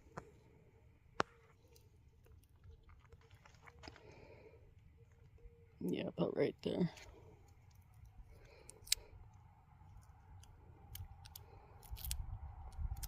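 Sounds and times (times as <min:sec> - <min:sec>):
paper clicks and crinkles: 0:01.5 - 0:04.2.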